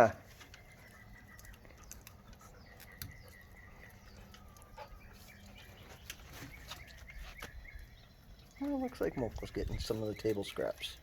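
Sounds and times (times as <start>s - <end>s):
faint bird chirps: 0.0s - 10.7s
dogs chewing frozen fish: 0.1s - 11.0s.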